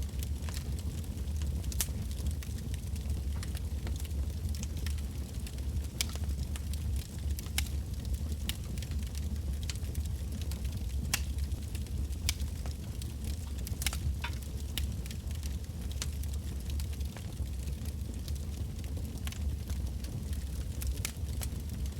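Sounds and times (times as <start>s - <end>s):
bonfire crackling: 0.0s - 21.9s
low steady rumble: 0.0s - 21.9s
sharp snaps and pops of logs: 11.1s - 11.3s.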